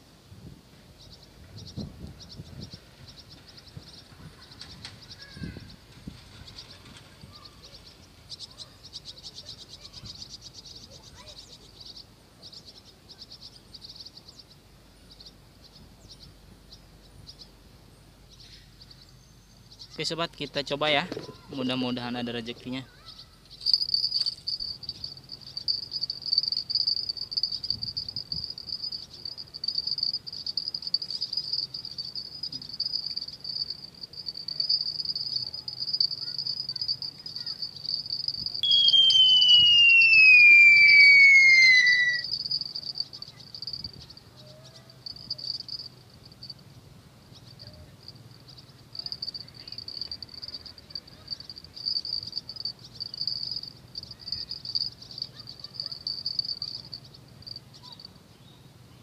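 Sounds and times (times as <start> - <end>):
insects buzzing: 19.7 - 58.2
loud whine falling in pitch: 38.6 - 42.3.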